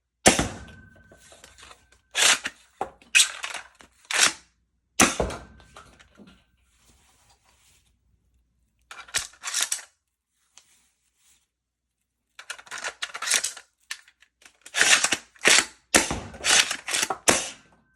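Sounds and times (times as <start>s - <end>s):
toy blaster plastic clacks: 12.4s - 15.8s, 16.4s - 17.6s.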